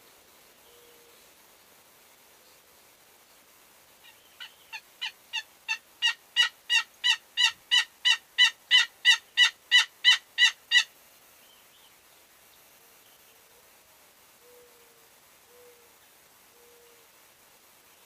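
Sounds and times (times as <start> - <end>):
turkey yelps: 4.0 - 10.9.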